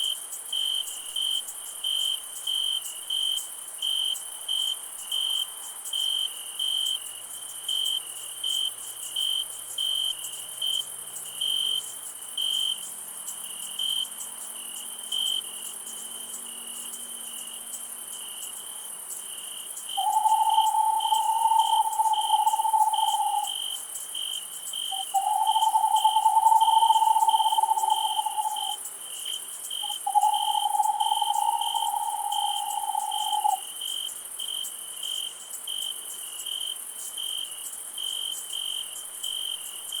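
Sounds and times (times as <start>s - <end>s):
crickets chirping: 0.0s - 40.0s
high insect hiss: 0.0s - 40.0s
long low-pitched calls: 20.0s - 23.6s, 24.9s - 28.8s, 29.8s - 33.6s.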